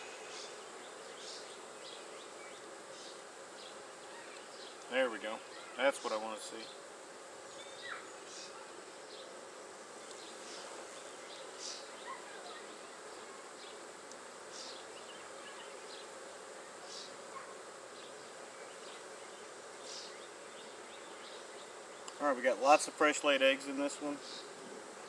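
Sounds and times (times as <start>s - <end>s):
bees buzzing: 0.0s - 25.0s.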